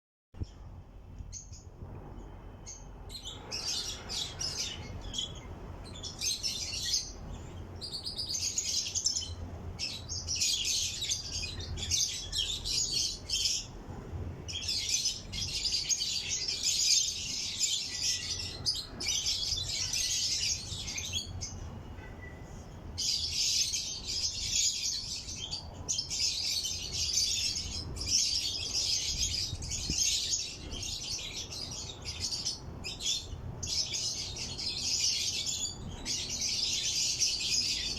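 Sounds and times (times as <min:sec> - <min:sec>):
lovebird high chirping: 0:02.5 - 0:13.7.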